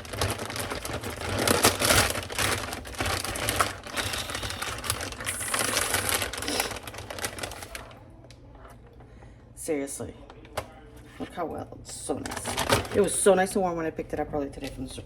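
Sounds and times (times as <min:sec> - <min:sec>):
plastic packaging crackling: 0:00.0 - 0:08.0, 0:12.2 - 0:13.4.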